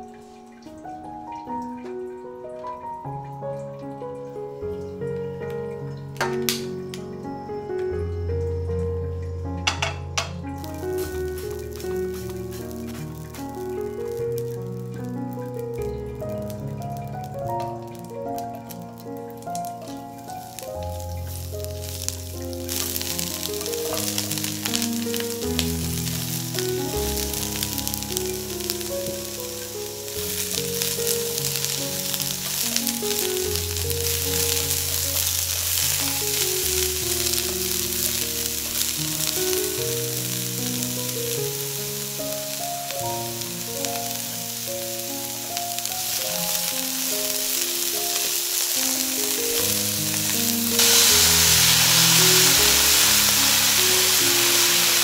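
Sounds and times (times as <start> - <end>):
loud hiss of water in pan: 9.6 - 17.6, 19.3 - 55.0
vegetables sizzling in oil: 9.6 - 55.0.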